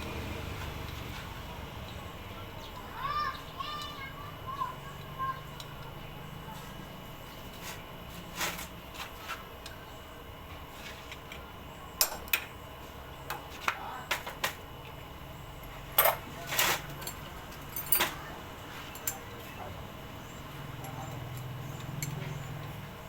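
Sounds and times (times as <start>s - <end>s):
metal tools clinking: 15.6s - 19.6s, 20.7s - 22.9s.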